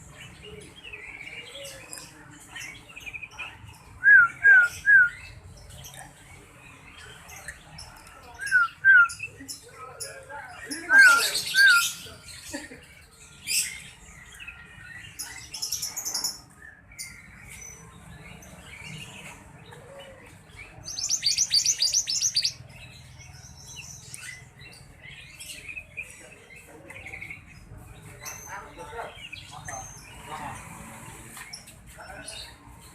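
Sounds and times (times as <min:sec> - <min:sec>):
songbird high chirps: 0:20.6 - 0:24.9
fast bird trill: 0:20.8 - 0:22.6.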